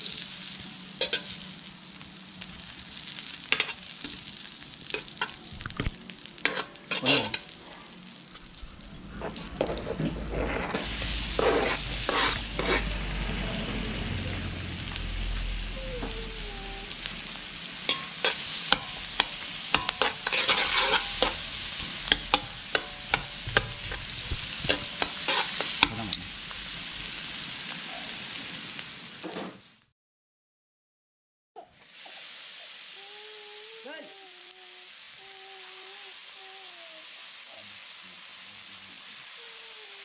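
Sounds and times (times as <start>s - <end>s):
onion and garlic sizzling in butter: 0.0s - 29.8s, 31.8s - 40.0s
metal utensil clacking on pan: 17.9s - 21.4s.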